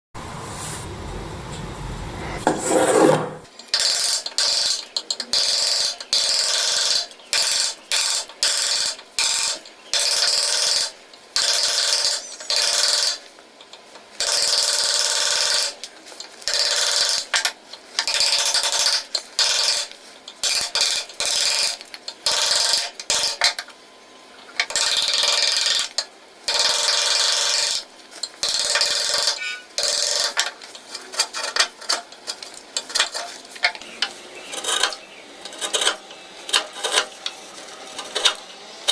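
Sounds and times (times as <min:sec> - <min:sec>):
hand tool scraping wood: 0:02.4 - 0:03.5, 0:28.5 - 0:38.9.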